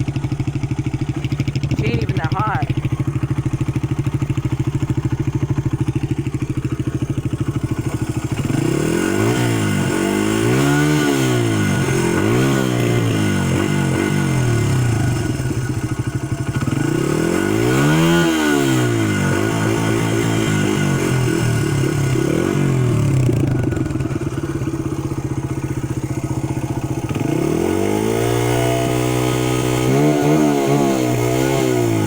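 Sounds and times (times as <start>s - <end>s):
motorcycle engine idling and revving: 0.0s - 32.0s.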